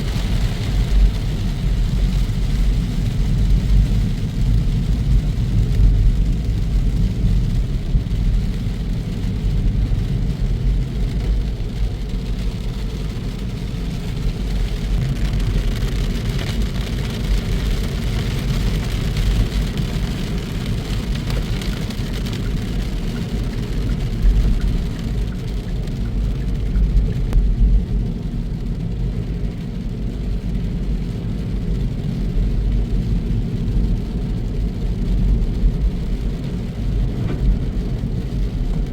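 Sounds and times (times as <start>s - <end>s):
tyre and road noise: 0.0s - 30.4s, 31.2s - 38.9s
truck engine rumble: 35.0s - 38.9s.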